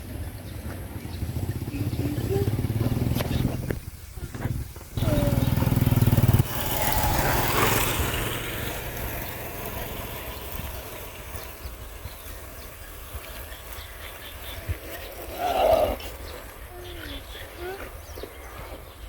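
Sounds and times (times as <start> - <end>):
passing vehicle rush: 0.0 - 16.7
motor engine humming: 0.1 - 14.5.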